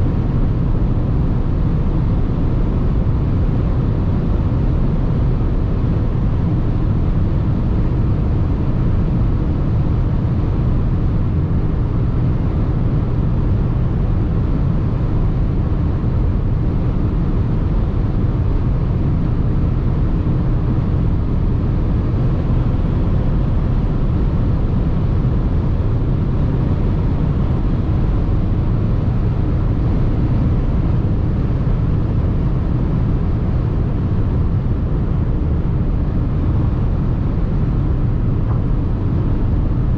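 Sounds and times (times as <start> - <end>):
car cabin wind noise: 0.0 - 39.9.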